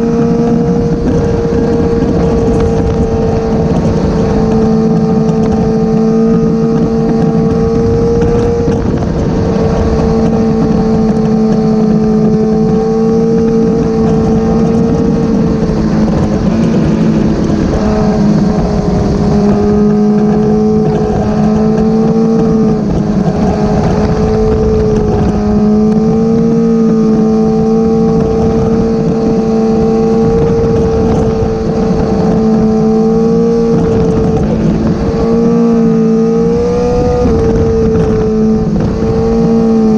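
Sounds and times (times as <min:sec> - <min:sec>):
motorcycle engine cruising: 0:00.0 - 0:39.9
wind buffeting microphone: 0:00.0 - 0:39.9.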